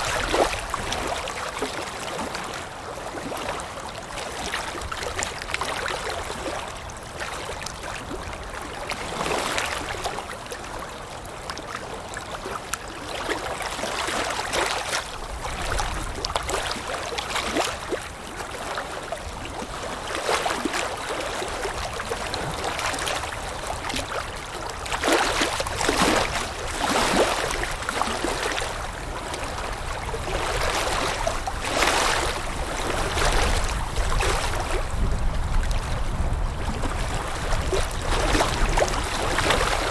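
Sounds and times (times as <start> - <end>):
water lapping and splashing: 0.0 - 39.9
low wind rumble: 28.6 - 39.9.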